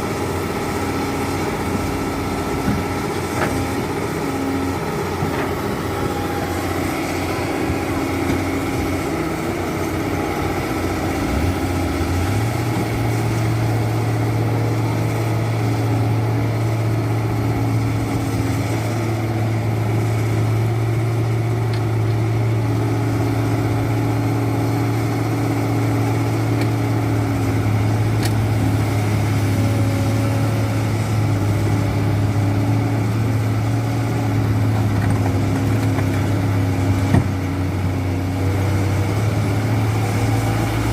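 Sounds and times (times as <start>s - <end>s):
truck engine running: 0.0s - 40.9s
strong low drone: 4.5s - 18.8s.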